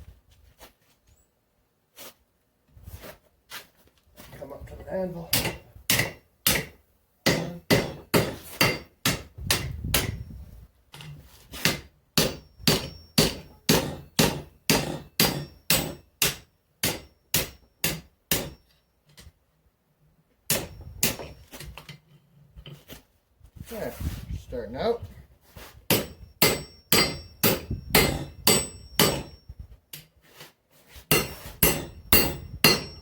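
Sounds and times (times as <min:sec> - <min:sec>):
hammer striking hot steel on anvil: 0:05.3 - 0:10.2, 0:11.6 - 0:18.7, 0:20.5 - 0:21.4, 0:25.9 - 0:30.0, 0:31.1 - 0:33.0.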